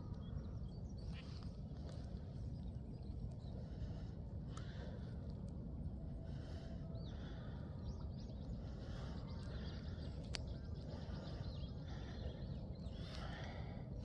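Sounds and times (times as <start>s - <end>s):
small birds chirping: 6.3s - 14.0s.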